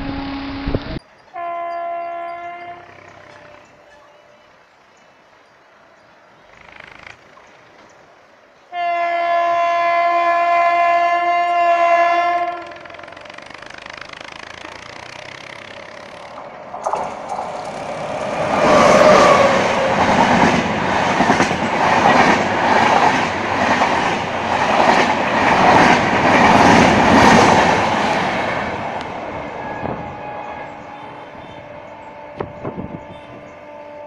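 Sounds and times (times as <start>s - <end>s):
train rushing through station: 10.3s - 34.0s
wheels clacking over rail joints: 11.4s - 31.5s.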